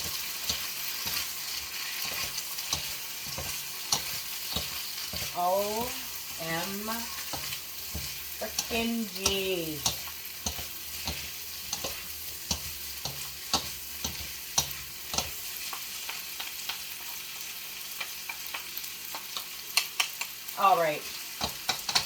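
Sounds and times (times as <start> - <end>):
utensil clacking in wok: 0.0 - 16.9, 21.3 - 22.0
vegetables sizzling in hot oil: 0.0 - 22.0.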